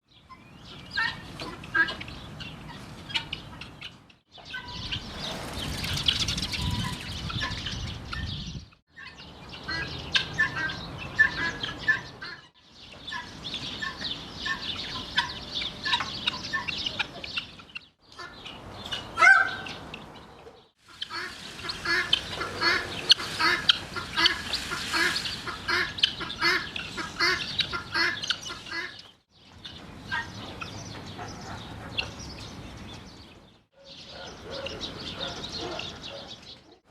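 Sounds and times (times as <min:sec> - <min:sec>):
birds chirping and clucking: 0:00.1 - 0:36.9.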